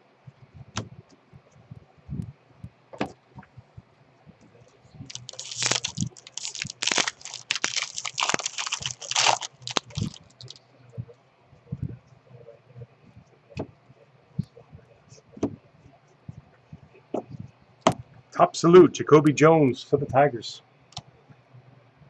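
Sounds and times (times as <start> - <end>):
foil wrapper tearing and crinkling: 5.1 - 10.6.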